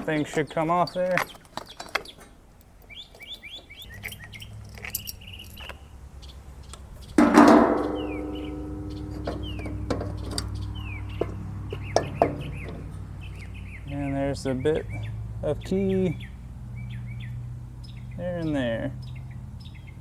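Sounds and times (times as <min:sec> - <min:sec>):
small birds chirping: 0:00.0 - 0:20.0
low steady hum: 0:04.0 - 0:13.4
ringing metal clang: 0:07.2 - 0:11.3.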